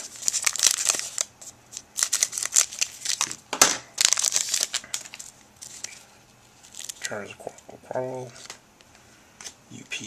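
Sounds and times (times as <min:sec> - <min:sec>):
wrapper crinkling and tearing: 0:00.0 - 0:03.4, 0:04.0 - 0:06.0, 0:06.6 - 0:07.6.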